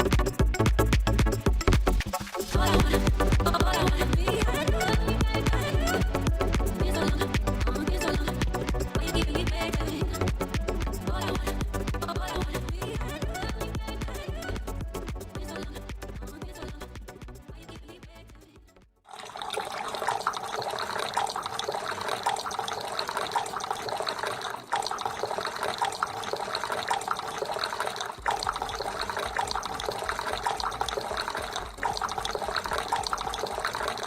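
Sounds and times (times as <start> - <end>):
water falling and splashing: 0.0 - 10.6, 19.1 - 34.0.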